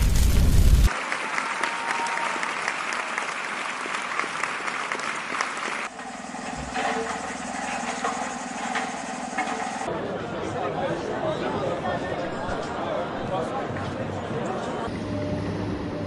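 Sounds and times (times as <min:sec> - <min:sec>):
loud low rumble: 0:00.0 - 0:00.9
audience applauding: 0:00.8 - 0:05.9
background murmuring: 0:09.9 - 0:15.1.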